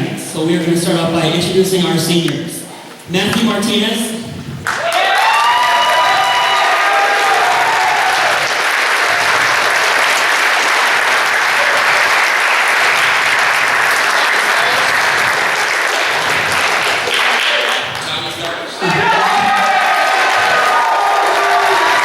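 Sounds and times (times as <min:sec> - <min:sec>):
audience applauding: 0:04.6 - 0:22.0
people cheering: 0:04.6 - 0:22.0.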